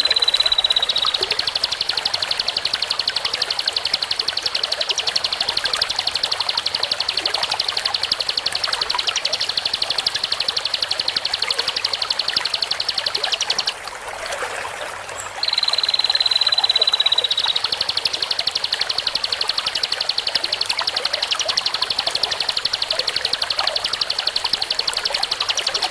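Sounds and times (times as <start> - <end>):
bird fast buzzing trill: 0.0 - 13.8, 15.4 - 25.9.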